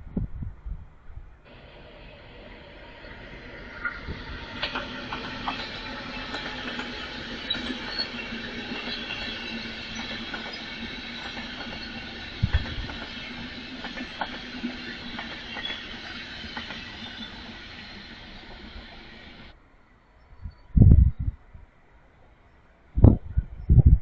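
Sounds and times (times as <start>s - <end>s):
train rolling past: 1.4s - 19.6s.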